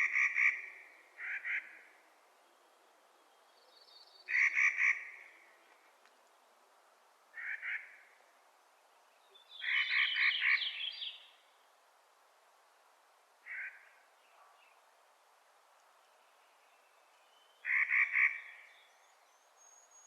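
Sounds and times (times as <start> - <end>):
bird harsh grating calls: 4.3 - 5.2, 7.4 - 8.0, 9.6 - 11.0, 17.6 - 18.6.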